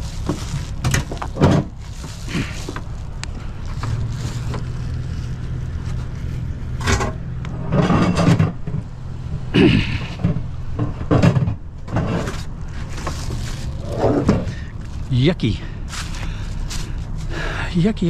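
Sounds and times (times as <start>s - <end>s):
microwave oven knocking and scraping: 6.8s - 8.9s, 10.2s - 12.4s.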